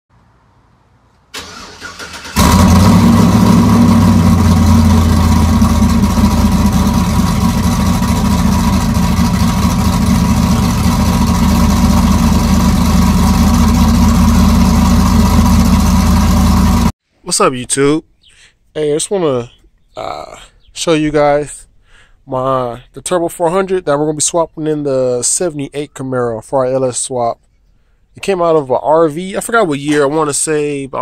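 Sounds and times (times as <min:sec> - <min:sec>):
car engine cranking: 0:01.4 - 0:16.9
car engine idling: 0:01.4 - 0:16.9.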